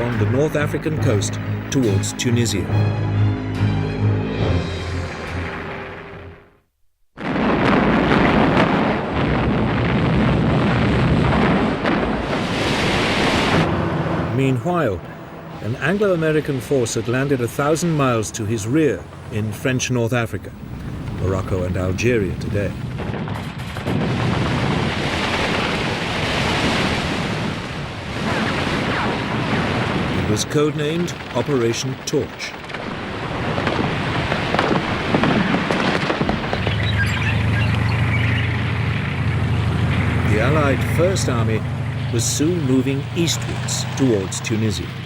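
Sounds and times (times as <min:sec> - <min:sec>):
music: 0:00.1 - 0:06.6
sea surf and waves: 0:11.0 - 0:23.0, 0:23.6 - 0:45.0
battle soundtrack rumble: 0:30.2 - 0:45.0.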